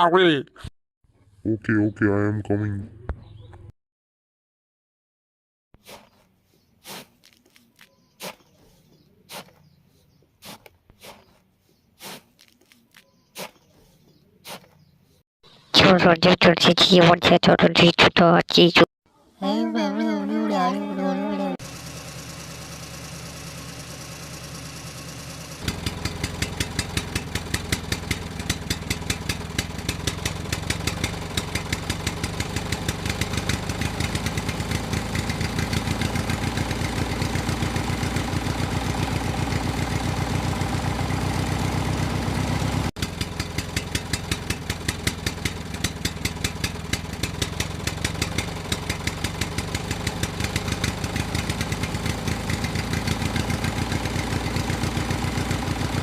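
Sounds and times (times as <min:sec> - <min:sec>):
engine idling with rapid putter: 0:21.6 - 0:56.0.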